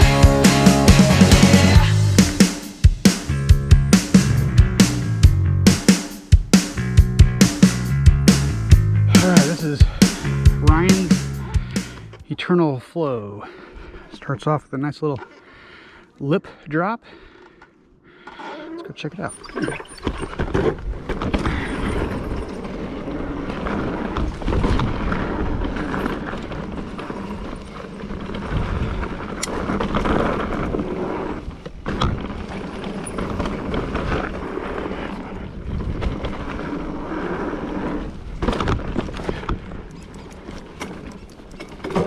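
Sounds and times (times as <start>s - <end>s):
bike tyres rolling over rough ground: 20.0s - 42.0s
bike rattling: 20.1s - 42.0s.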